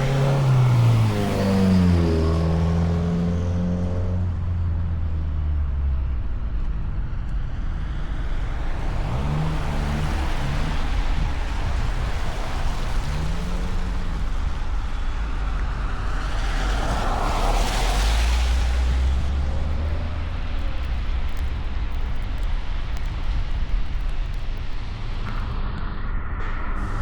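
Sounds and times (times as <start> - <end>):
car engine and tyre rumble: 0.0 - 27.0.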